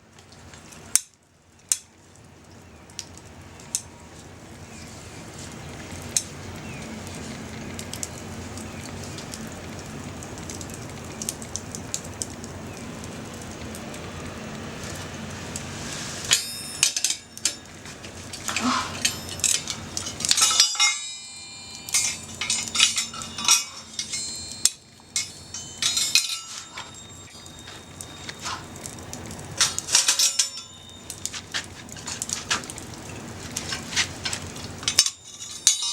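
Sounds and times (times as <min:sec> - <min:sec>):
low background noise: 0:00.0 - 0:35.9
metal clinking and clattering: 0:16.3 - 0:32.8, 0:33.6 - 0:35.9.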